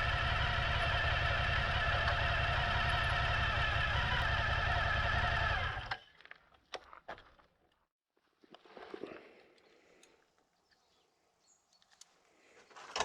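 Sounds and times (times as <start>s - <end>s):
motorcycle engine running: 0.0s - 5.9s.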